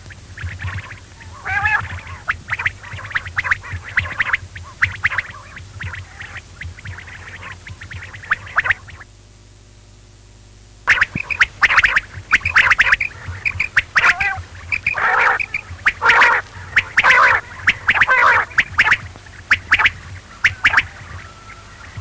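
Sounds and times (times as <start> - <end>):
quail calling: 0.0 - 9.0, 10.9 - 22.0
sharp clicks: 10.9 - 21.0.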